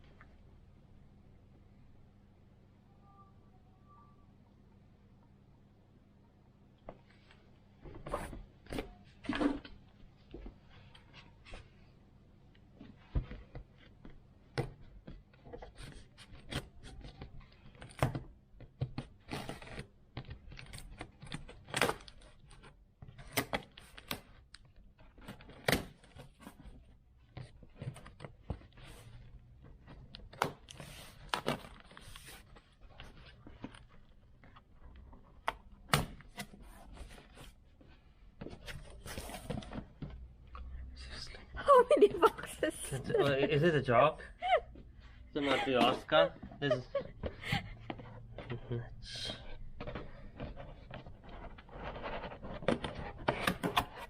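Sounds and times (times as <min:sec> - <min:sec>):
cardboard boxes being handled: 0:25.0 - 0:40.4.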